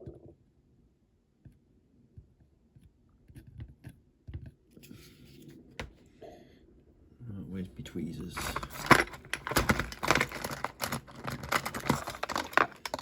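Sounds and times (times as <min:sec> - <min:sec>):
metal parts and tools clicking: 0:08.4 - 0:13.0.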